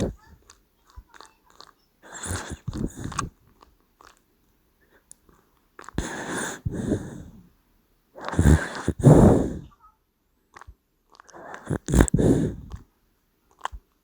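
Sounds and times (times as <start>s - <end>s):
dog snoring: 2.0s - 3.3s, 8.2s - 9.7s, 11.3s - 12.8s.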